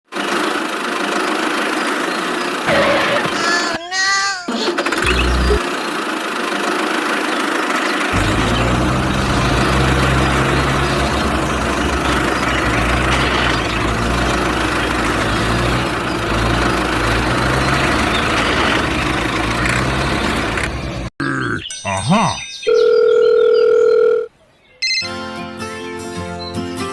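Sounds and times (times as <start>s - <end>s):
engine idling: 0.1s - 3.4s, 4.7s - 21.1s.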